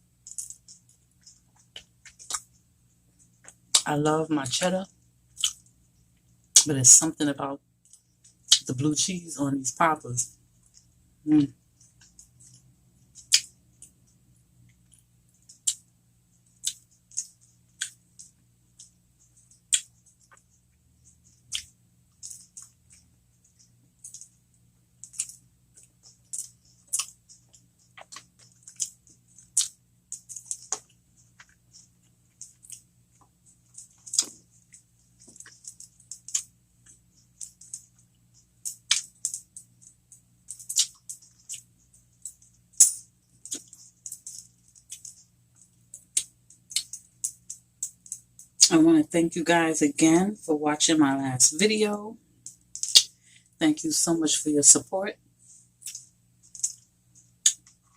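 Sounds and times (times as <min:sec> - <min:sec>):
wet chewing: 0:00.3 - 0:02.6, 0:16.5 - 0:24.3, 0:25.0 - 0:48.7.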